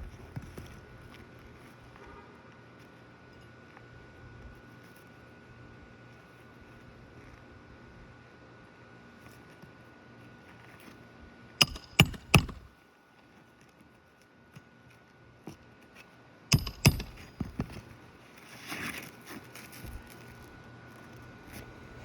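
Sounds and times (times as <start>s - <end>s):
hammer striking nails: 11.6s - 12.7s, 16.5s - 17.7s.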